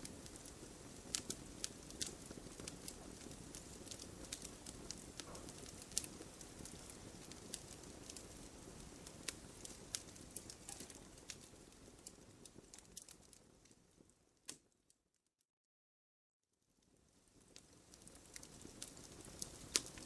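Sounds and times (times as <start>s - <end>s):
campfire crackling and popping: 0.0s - 14.7s, 16.8s - 20.0s.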